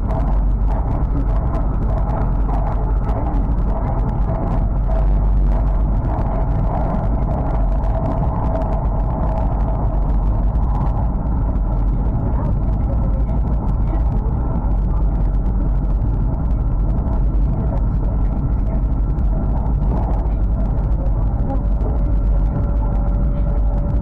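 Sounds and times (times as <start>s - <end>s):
faint steady hum: 0.0s - 24.0s
train cabin low rumble: 0.0s - 24.0s.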